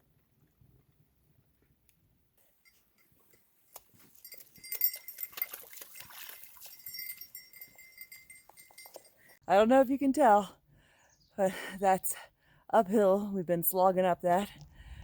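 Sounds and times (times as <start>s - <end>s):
light metallic clinking: 2.6s - 9.4s.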